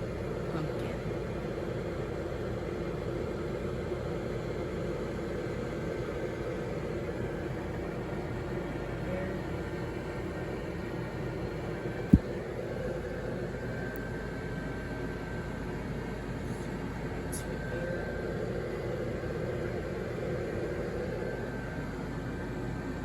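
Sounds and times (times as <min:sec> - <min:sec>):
blower fan humming: 0:00.0 - 0:23.0
sharp low thump: 0:12.1 - 0:12.4.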